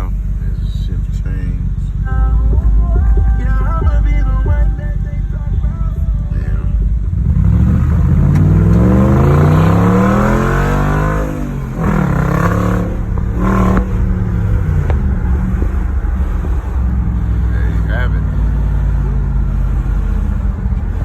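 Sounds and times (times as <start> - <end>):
car engine accelerating loud exhaust: 5.0 - 21.0.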